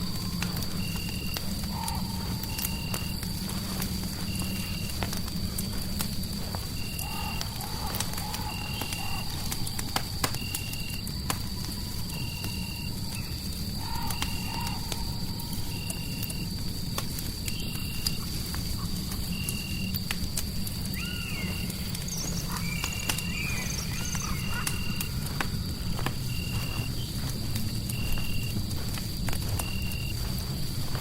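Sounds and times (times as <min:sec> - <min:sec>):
fire crackling and popping: 0:00.0 - 0:31.0
warbling animal calls: 0:21.0 - 0:25.4.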